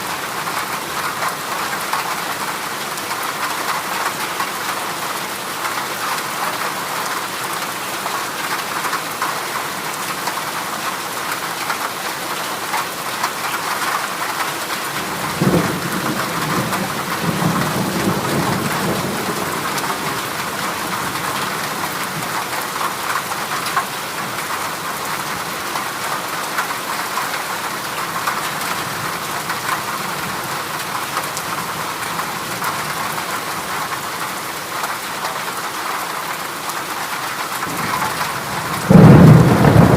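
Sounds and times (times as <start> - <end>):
heavy rain on a metal roof: 0.0 - 39.9
thunder clap rumbling: 37.6 - 39.9.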